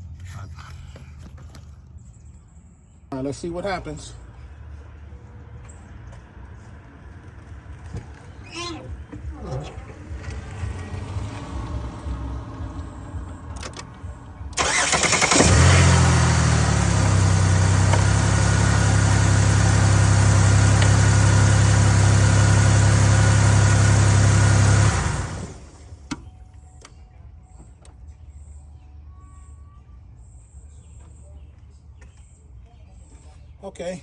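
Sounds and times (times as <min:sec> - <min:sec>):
car engine starting and idling: 0:09.8 - 0:26.2
starter cranking: 0:14.6 - 0:25.9.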